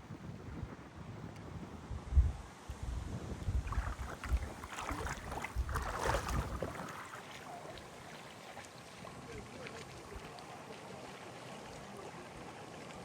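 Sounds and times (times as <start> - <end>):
wind buffeting microphone: 0.0 - 7.1
water splashing and lapping: 3.4 - 13.0.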